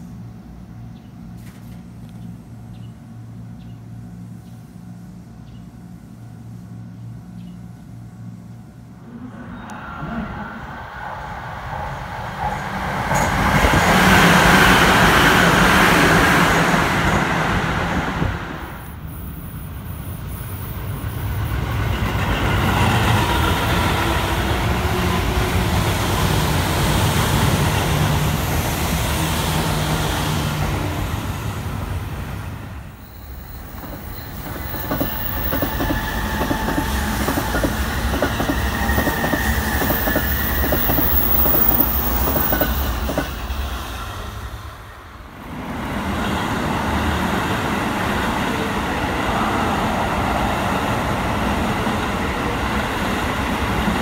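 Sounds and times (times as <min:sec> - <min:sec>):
train rumble and hum: 0:00.0 - 0:54.0
train running along platform: 0:00.0 - 0:54.0
train wheel clatter on rail joints: 0:33.6 - 0:43.4.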